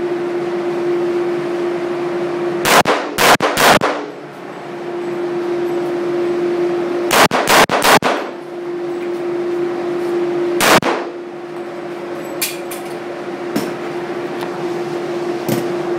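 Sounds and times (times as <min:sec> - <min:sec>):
steady hum: 0:00.0 - 0:15.9
pistol shots: 0:02.6 - 0:04.1, 0:07.1 - 0:08.3, 0:10.6 - 0:11.1.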